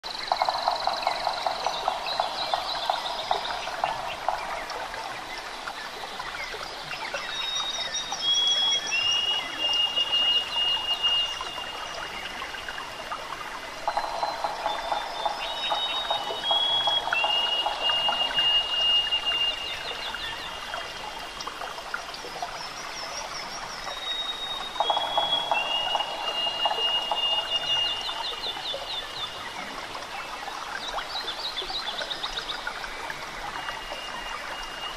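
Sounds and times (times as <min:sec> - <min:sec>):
birds chattering trills: 0:13.5 - 0:20.9
high whistled bird notes: 0:13.9 - 0:20.7, 0:23.9 - 0:28.6.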